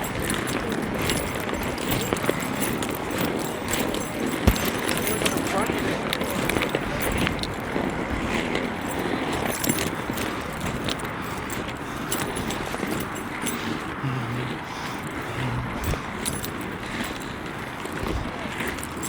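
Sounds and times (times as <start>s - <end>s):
clicks and rattles: 0.0s - 7.6s
skate wheels rolling on pavement: 0.0s - 19.0s.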